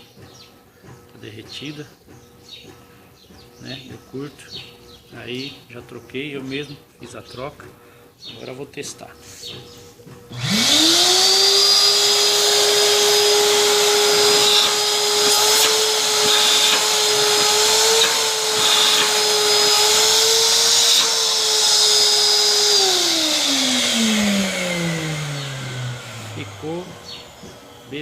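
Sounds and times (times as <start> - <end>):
vacuum cleaner running: 10.2 - 28.0.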